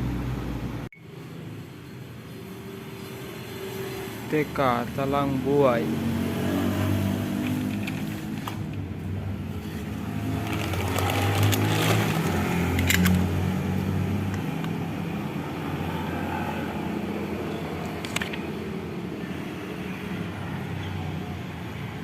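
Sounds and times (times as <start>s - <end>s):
vehicle engine humming: 4.9s - 19.3s.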